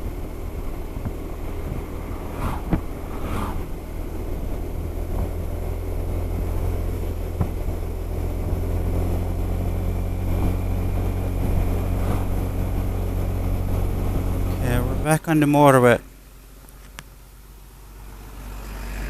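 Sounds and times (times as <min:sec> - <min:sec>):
scooter engine running: 0:00.0 - 0:15.0
road and wind noise: 0:00.0 - 0:19.0.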